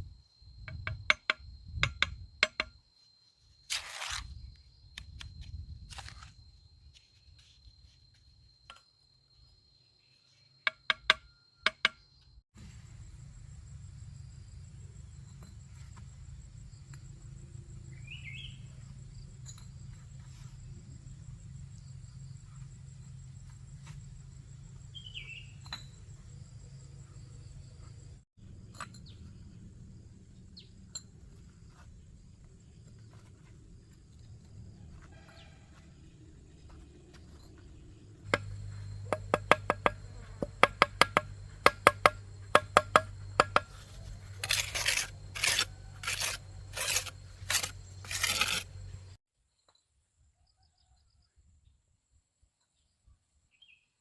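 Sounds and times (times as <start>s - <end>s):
high insect drone: 0.0s - 49.2s
bird chirps: 17.9s - 18.8s, 24.9s - 26.0s.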